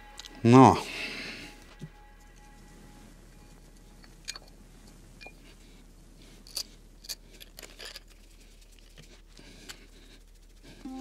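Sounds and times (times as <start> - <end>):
small metal parts clicking: 4.0 - 4.5, 6.4 - 9.0.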